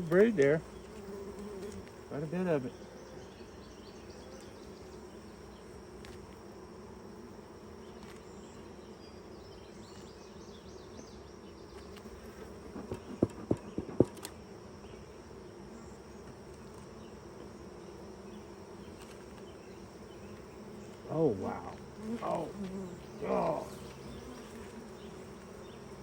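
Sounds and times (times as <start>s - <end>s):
honeybees buzzing: 0.0s - 26.0s
sharp taps on wood: 12.7s - 14.3s.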